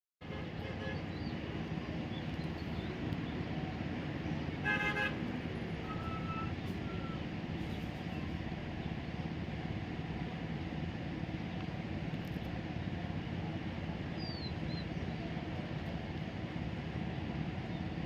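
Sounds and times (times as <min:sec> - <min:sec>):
low background rumble: 0:00.2 - 0:18.0.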